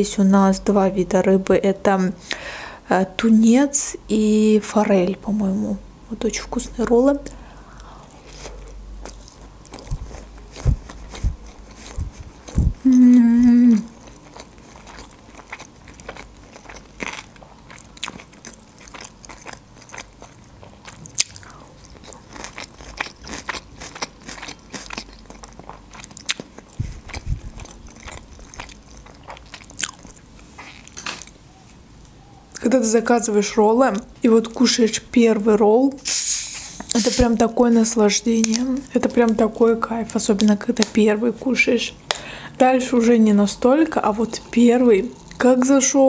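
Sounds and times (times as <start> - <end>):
chewing with wet mouth clicks: 9.0 - 12.8, 13.9 - 31.3
person humming mmm: 12.6 - 14.0.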